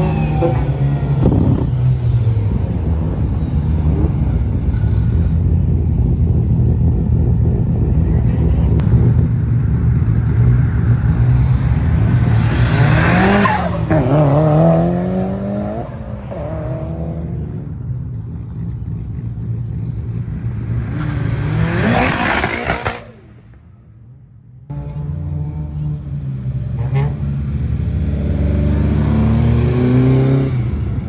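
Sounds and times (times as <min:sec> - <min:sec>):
car engine accelerating: 0:00.0 - 0:23.2.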